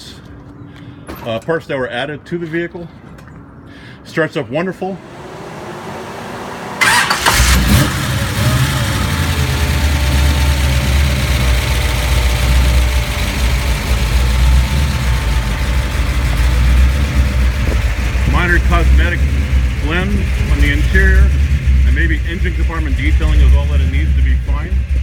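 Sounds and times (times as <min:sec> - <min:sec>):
car engine idling deeply: 0:05.0 - 0:25.0
starter motor cranking: 0:06.8 - 0:18.5.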